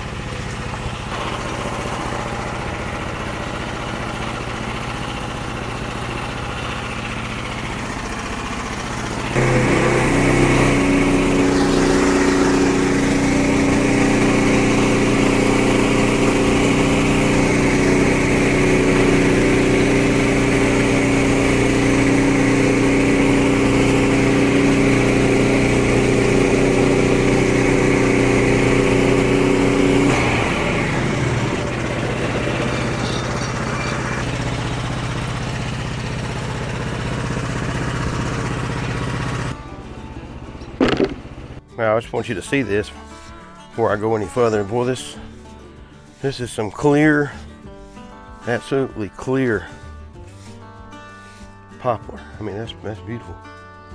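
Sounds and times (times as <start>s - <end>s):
band saw cutting log: 0.0s - 39.6s, 40.8s - 41.6s, 50.3s - 51.5s
small gas engine running: 0.0s - 52.6s.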